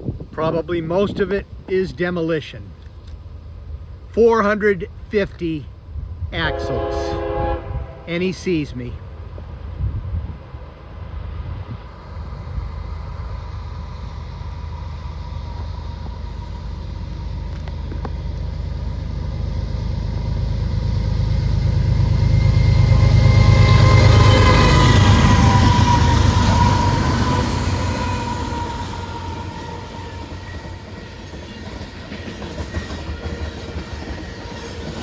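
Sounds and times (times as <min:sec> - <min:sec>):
diesel locomotive engine rumble: 0:00.0 - 0:35.0
high steady whine: 0:12.2 - 0:27.5.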